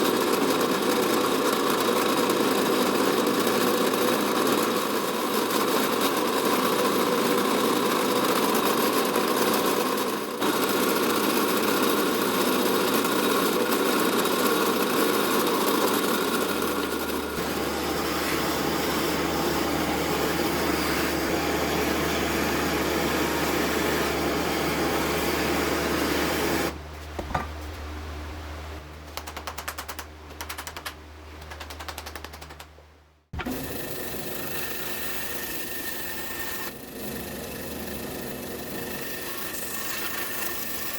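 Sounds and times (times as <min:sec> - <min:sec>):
power tool running: 0:00.0 - 0:26.8, 0:33.4 - 0:40.9
rapid ticking: 0:29.1 - 0:32.7.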